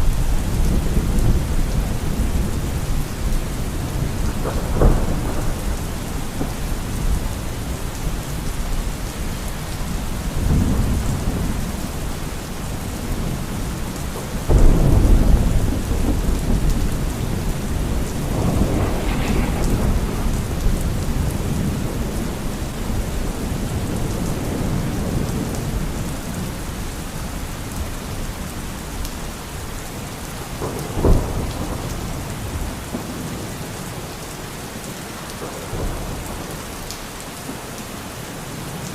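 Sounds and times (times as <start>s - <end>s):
rolling thunder: 0.0s - 29.0s, 30.4s - 33.7s
steady rain: 0.0s - 38.9s
sharp thunder crack: 14.5s - 25.2s.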